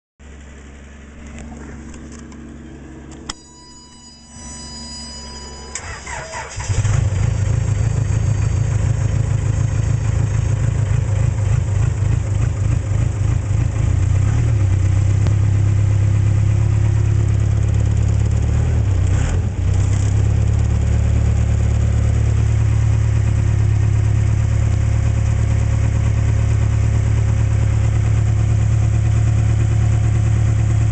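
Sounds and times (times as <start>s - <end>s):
warning beep: 3.3s - 11.0s
starter motor cranking: 5.7s - 7.0s
diesel engine idling: 5.7s - 19.7s.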